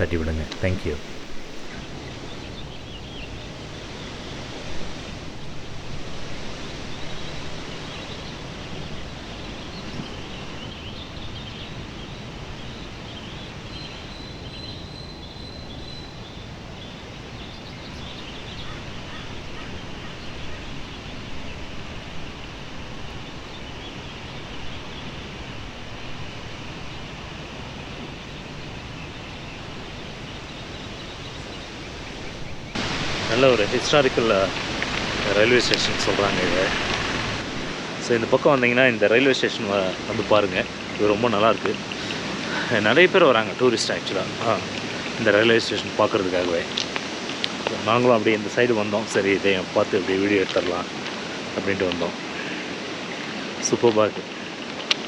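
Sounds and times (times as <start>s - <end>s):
birds chirping: 0.0s - 37.8s
steady rushing hiss: 0.0s - 53.7s.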